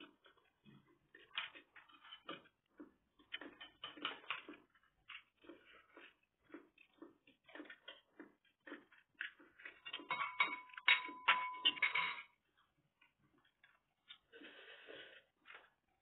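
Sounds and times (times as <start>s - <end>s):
person chewing food: 0.0s - 11.2s, 12.4s - 16.0s.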